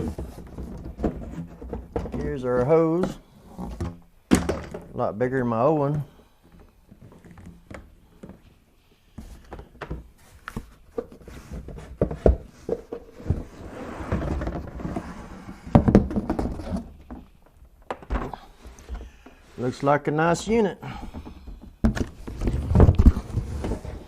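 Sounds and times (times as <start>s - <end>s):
plastic parts clunking: 0.0s - 5.0s.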